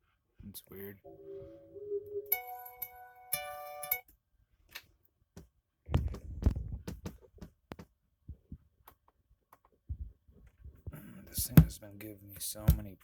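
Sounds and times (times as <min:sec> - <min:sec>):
low thumps: 0:11.4 - 0:11.8.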